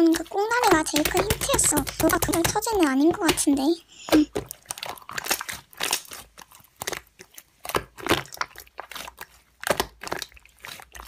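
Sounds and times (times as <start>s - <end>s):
slime squished by hand: 0.0s - 11.0s.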